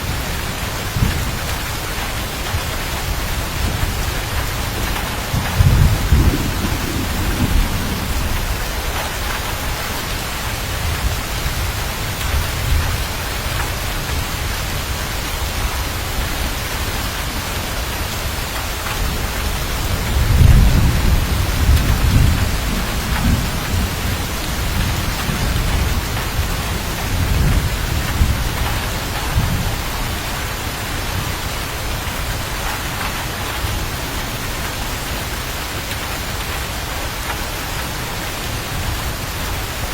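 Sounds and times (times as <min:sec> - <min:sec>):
rolling thunder: 0:00.0 - 0:15.0, 0:18.9 - 0:32.1
heavy rain hissing: 0:00.0 - 0:39.9.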